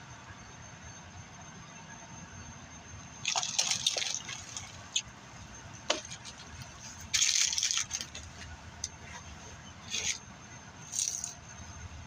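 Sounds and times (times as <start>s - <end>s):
plastic bottle crinkling and sloshing: 3.2s - 5.0s, 5.9s - 10.2s.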